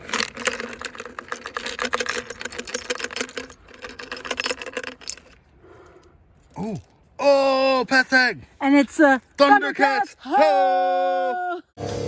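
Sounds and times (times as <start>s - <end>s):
small trinkets rattling in container: 0.0s - 5.5s.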